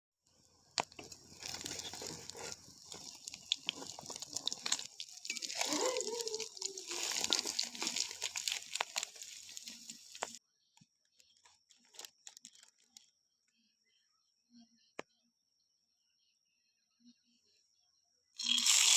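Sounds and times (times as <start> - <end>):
dense crackling and crinkling: 0.2 - 10.4, 11.0 - 13.2.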